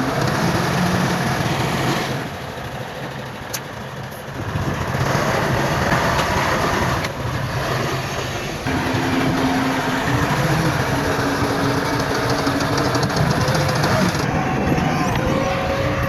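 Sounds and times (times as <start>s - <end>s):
heavy diesel machinery running: 0.0s - 16.0s
steady hum: 8.2s - 16.0s.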